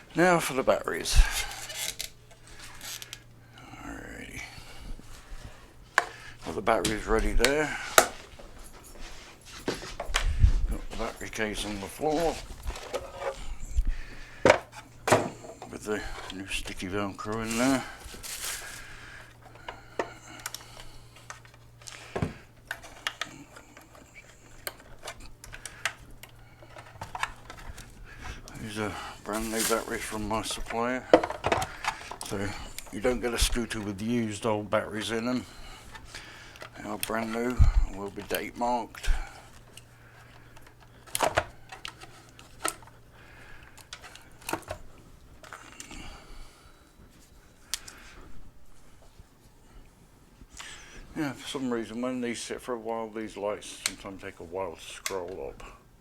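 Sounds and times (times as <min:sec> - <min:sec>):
low steady hum: 0:00.0 - 0:56.0
hands handling batteries: 0:01.1 - 0:03.4, 0:04.9 - 0:46.0, 0:46.9 - 0:48.1
batteries clicking and knocking: 0:29.3 - 0:33.7.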